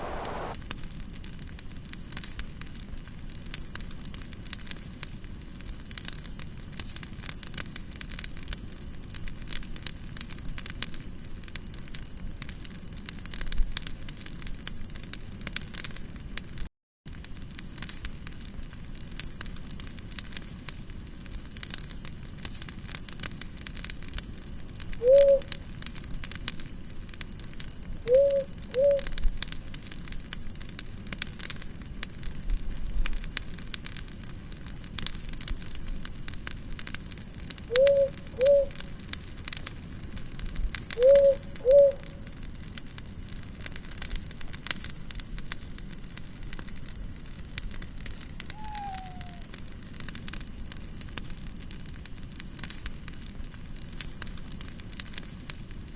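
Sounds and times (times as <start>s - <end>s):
low arched calls: 0.0s - 0.6s, 25.0s - 25.5s, 28.1s - 29.1s, 33.7s - 35.2s, 37.7s - 38.8s, 41.0s - 42.2s, 48.5s - 49.5s, 54.0s - 55.4s
campfire crackling: 0.0s - 55.9s
high chirping trill: 48.6s - 49.4s.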